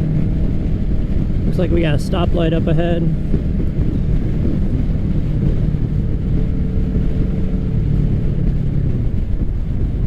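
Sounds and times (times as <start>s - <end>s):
motorcycle engine running: 0.0s - 10.0s
wind noise on microphone: 0.0s - 10.0s.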